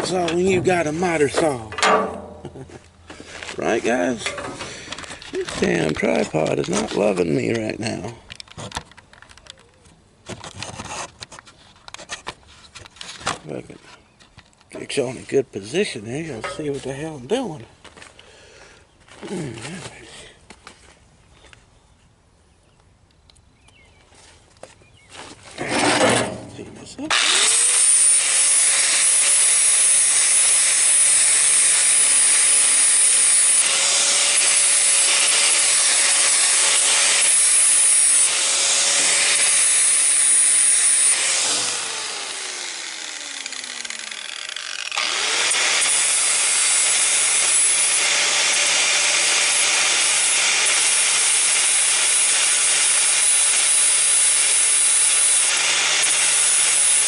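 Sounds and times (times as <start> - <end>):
miter saw cutting steel: 0.0 - 2.7, 25.6 - 57.0
saw motor winding down: 27.1 - 57.0.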